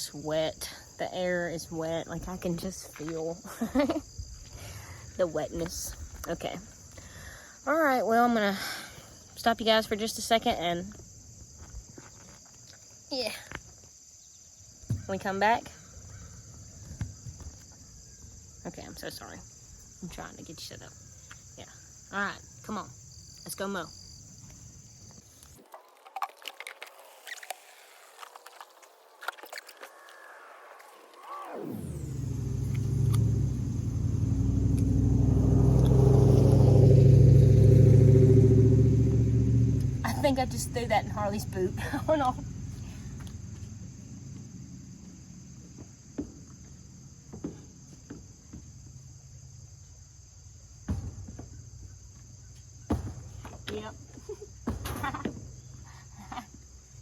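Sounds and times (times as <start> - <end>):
crickets chirring: 0.0 - 57.0
knocks and clunks: 14.8 - 15.4, 50.8 - 56.6.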